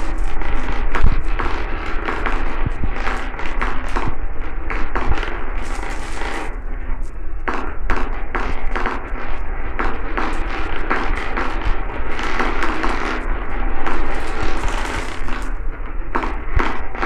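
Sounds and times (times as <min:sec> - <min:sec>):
marbles rolling rumble: 0:11.4 - 0:15.6.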